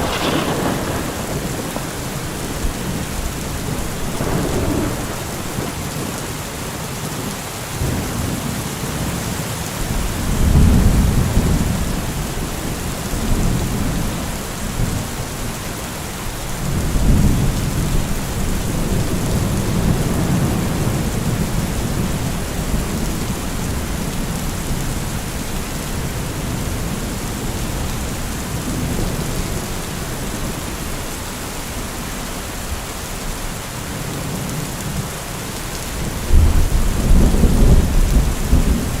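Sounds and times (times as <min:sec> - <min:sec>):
low thunder rolls: 0:00.0 - 0:06.4, 0:36.2 - 0:39.0
rain falling: 0:00.0 - 0:39.0.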